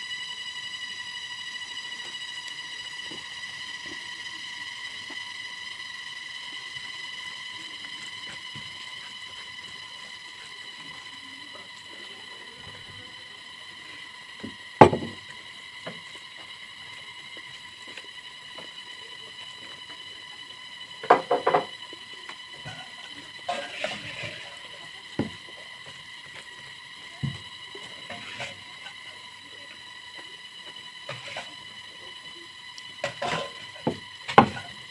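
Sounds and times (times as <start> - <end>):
faint high whine: 0.0 - 34.9.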